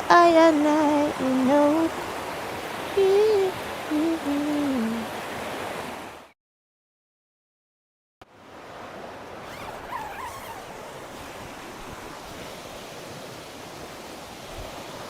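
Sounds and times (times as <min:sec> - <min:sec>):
rushing rainforest ambience: 0:00.0 - 0:06.3, 0:08.3 - 0:15.0.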